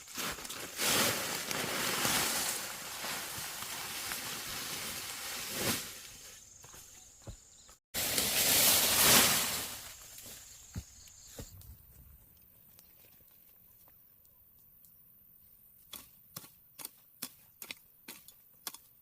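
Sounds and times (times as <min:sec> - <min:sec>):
dry corn stalks rustling: 0:00.0 - 0:13.9.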